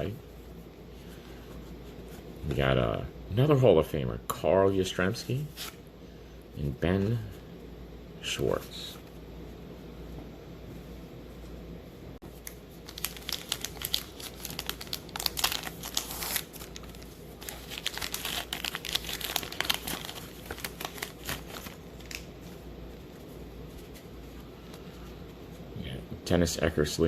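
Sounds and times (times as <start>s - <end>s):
plastic wrapper crinkling and tearing: 12.4s - 22.3s.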